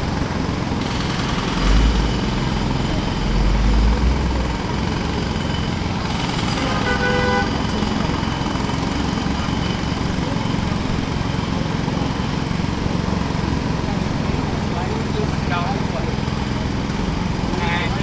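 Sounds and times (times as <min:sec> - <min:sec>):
jackhammer pounding: 0:00.0 - 0:18.0.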